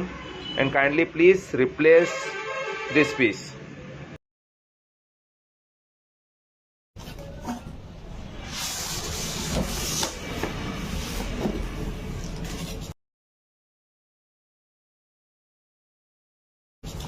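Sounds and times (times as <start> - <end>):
rubbing and handling noise: 7.0 - 13.0.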